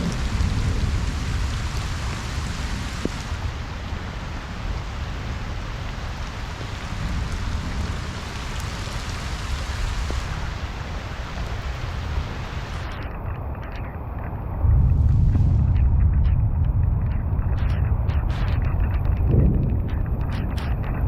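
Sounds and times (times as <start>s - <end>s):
rain falling on pond: 0.0s - 14.3s, 17.2s - 21.0s
low rumble: 12.9s - 21.0s.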